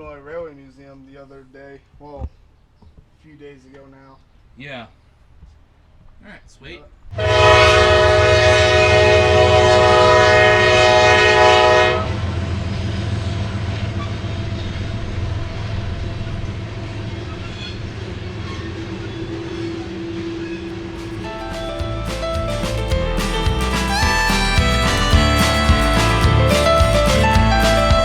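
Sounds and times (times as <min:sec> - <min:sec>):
train rumbling past: 0:07.1 - 0:28.0
train air horn chord: 0:07.2 - 0:12.2.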